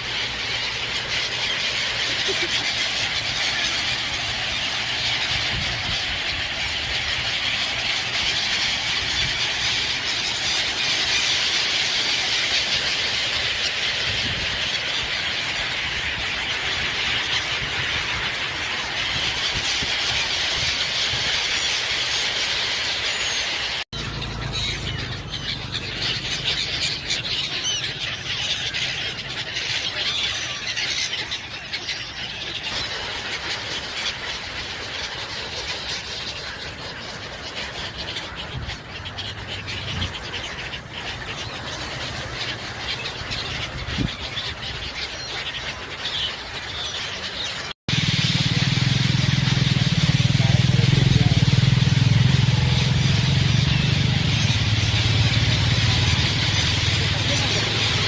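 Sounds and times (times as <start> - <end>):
birds calling: 0.0 - 58.0
outdoor noise: 0.0 - 58.0
low engine hum: 24.0 - 27.6, 47.9 - 58.0.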